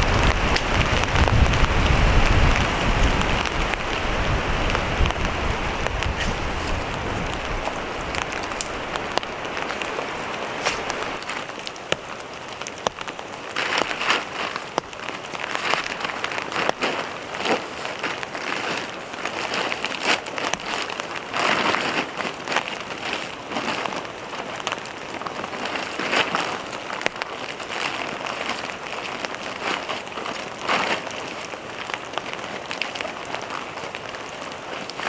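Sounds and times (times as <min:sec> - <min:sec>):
low wind rumble: 0:00.0 - 0:11.2
sharp raindrop hits: 0:00.0 - 0:11.4
rain falling: 0:00.0 - 0:35.0.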